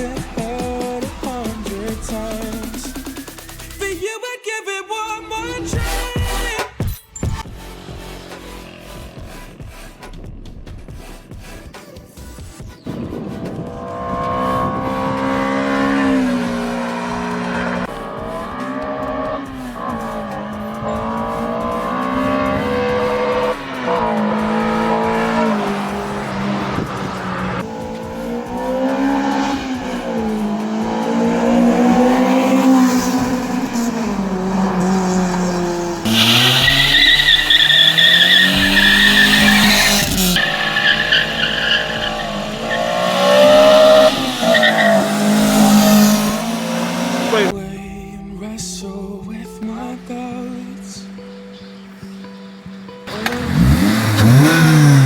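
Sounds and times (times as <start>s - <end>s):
car engine revving through gears: 7.2s - 11.7s, 12.9s - 47.6s, 50.7s - 55.0s
tyres squealing: 14.2s - 47.5s, 51.0s - 55.0s.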